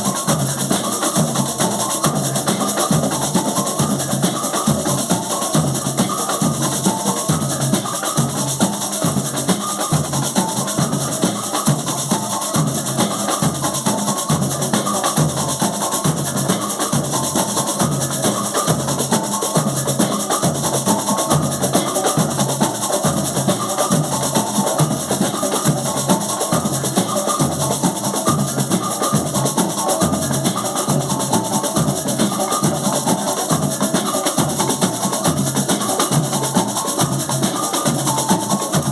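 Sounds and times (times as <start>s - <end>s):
drums and percussion playing: 0.0s - 38.9s.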